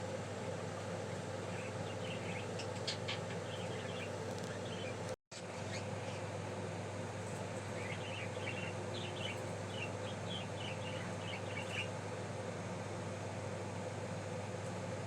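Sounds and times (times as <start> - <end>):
steady background hum: 0.0 - 15.0
budgie chirping: 1.4 - 5.0, 7.7 - 11.9.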